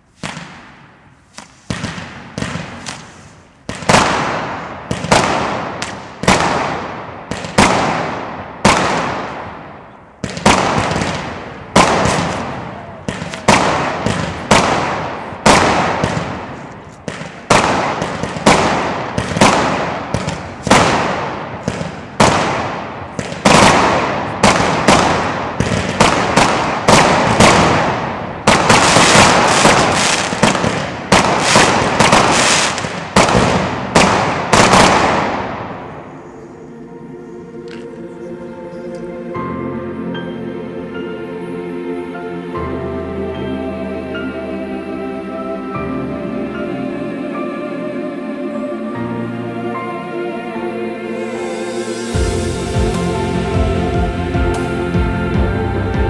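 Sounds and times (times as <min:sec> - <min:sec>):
fireworks cake firing bangs: 0:00.1 - 0:36.0.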